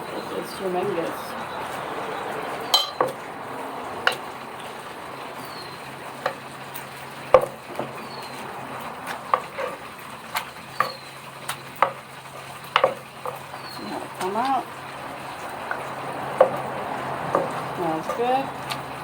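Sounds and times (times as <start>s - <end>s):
chicken frying in oil: 0.0s - 19.0s
pestle pounding in mortar: 7.3s - 8.0s, 9.0s - 14.5s, 15.4s - 18.8s.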